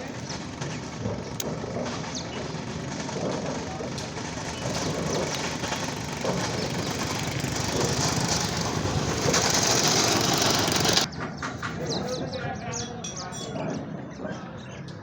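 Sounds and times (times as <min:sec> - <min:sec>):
motorcycle engine rattling: 0:00.0 - 0:11.1.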